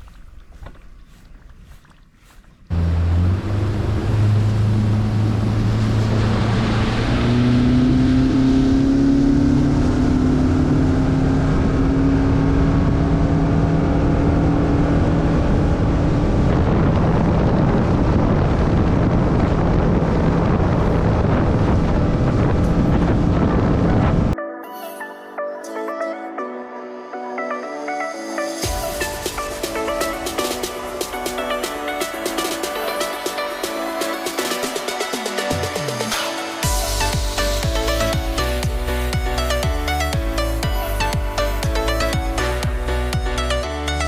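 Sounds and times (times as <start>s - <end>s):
motorboat engine running: 0.0s - 24.4s, 28.6s - 44.0s
wind on microphone: 0.0s - 24.4s.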